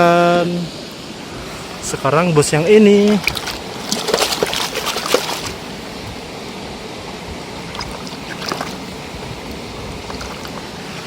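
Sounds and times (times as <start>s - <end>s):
water running and splashing: 1.4s - 6.5s, 7.4s - 11.0s.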